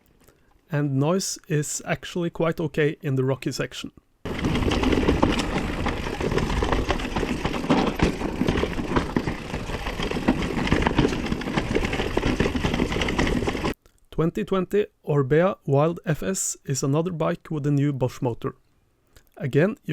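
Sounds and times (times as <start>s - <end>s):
bike tyres rumbling over rock: 4.3s - 13.8s.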